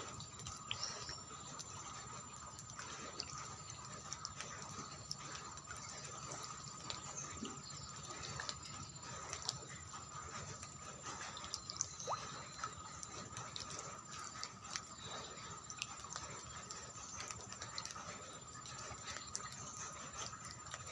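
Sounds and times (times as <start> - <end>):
drips ticking and splashing: 0.0 - 20.9.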